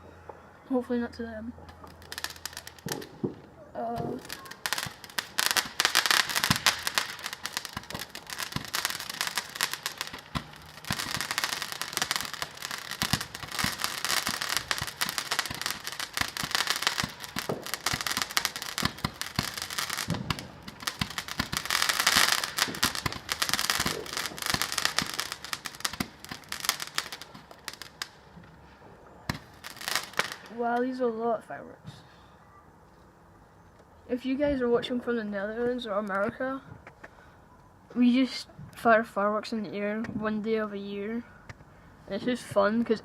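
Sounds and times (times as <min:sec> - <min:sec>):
fireworks crackling and popping: 0:01.6 - 0:28.6, 0:29.2 - 0:31.0
deep firework bangs: 0:01.9 - 0:28.1.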